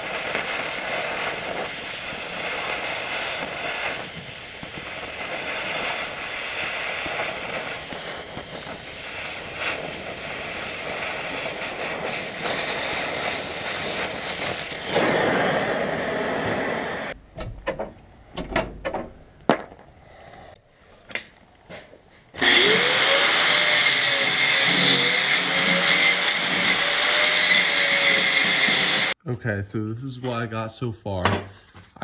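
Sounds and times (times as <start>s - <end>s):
cutting torch hissing roar: 0.0s - 17.2s, 22.4s - 29.2s.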